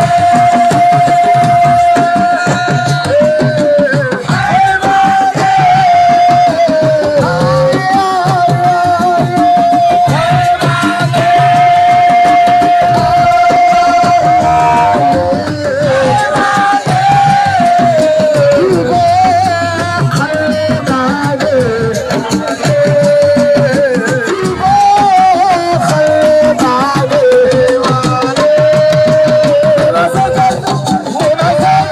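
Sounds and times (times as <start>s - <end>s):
hand drums playing: 0.0s - 31.9s
melody with long high note: 13.7s - 15.9s.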